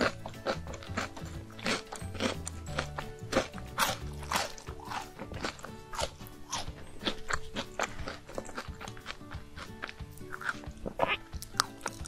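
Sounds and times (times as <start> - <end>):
chewing and crunching snacks: 0.0 - 12.0
soft background music: 0.0 - 12.0.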